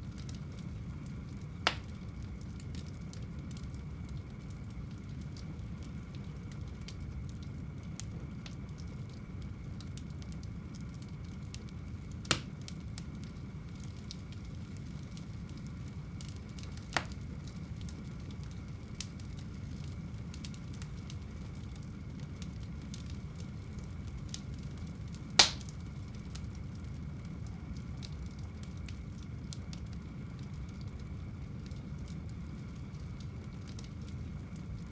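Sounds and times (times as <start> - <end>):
fire crackling: 0.0 - 34.9
low rumble of flames: 0.0 - 34.9
sharp pops of burning wood: 1.4 - 2.9, 12.1 - 13.2, 16.2 - 21.8, 25.1 - 26.6.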